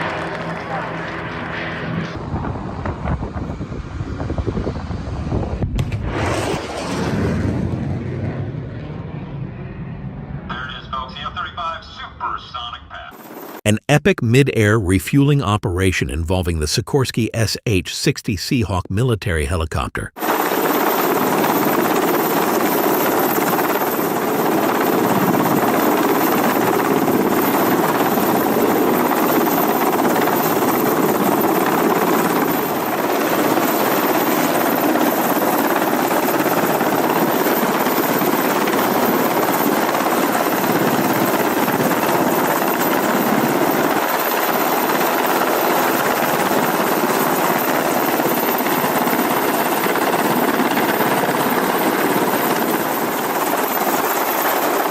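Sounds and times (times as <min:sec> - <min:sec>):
helicopter in flight: 0:00.0 - 0:07.6, 0:20.2 - 0:54.9.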